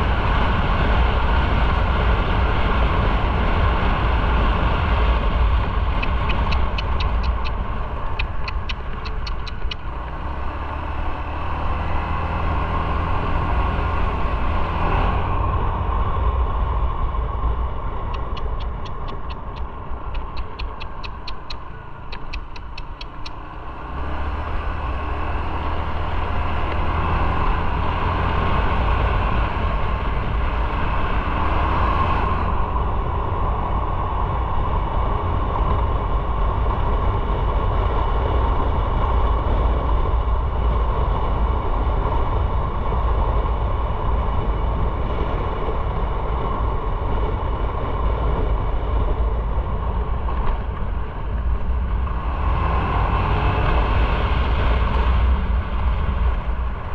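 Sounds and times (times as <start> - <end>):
wind noise: 0.0 - 56.9
motorcycle engine: 1.5 - 36.2.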